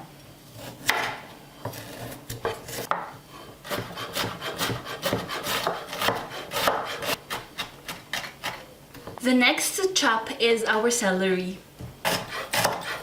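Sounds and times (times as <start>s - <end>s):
knife cutting carrot on wooden board: 3.7s - 8.6s, 12.0s - 13.0s.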